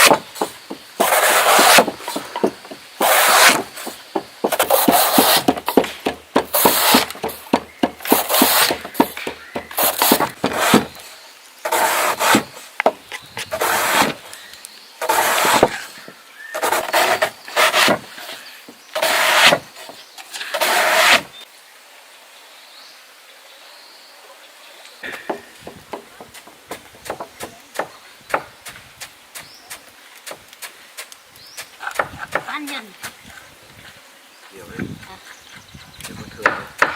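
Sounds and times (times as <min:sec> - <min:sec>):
rough rasping strokes: 0:00.0 - 0:14.4, 0:15.0 - 0:21.4
faint scattered clicks: 0:14.3 - 0:14.8.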